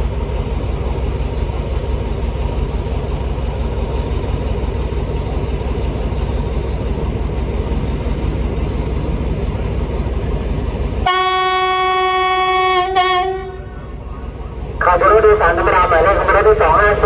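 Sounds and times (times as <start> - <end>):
diesel locomotive engine rumbling: 0.0 - 17.0
locomotive horn blasts: 11.0 - 13.9.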